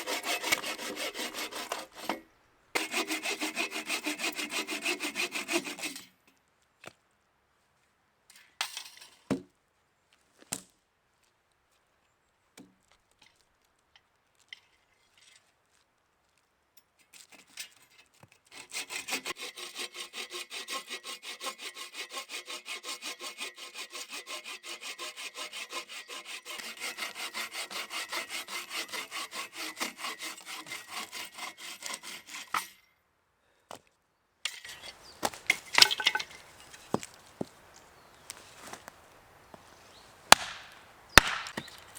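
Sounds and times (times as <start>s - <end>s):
hand saw cutting wood: 0.0s - 6.2s, 17.1s - 32.8s, 34.5s - 37.6s
knocks and handling sounds: 34.5s - 39.6s.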